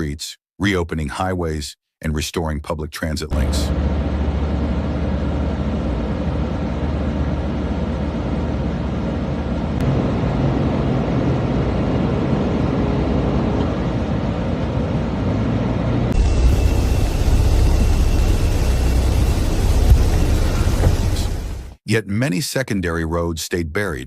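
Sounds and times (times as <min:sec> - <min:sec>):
vehicle engine and road noise: 0:03.4 - 0:21.8.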